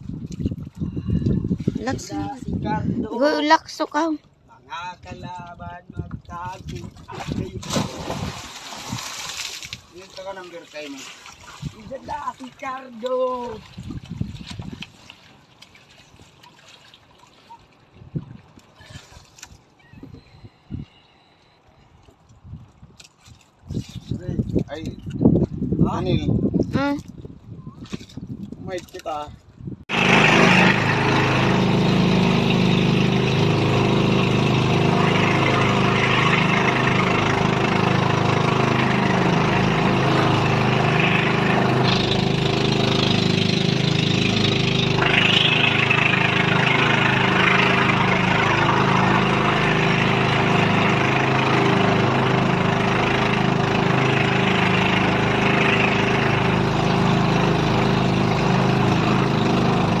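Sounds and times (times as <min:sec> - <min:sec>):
boat engine running: 0:00.0 - 0:08.7, 0:29.9 - 1:00.0
water splashing along hull: 0:00.0 - 0:25.7, 0:29.9 - 1:00.0.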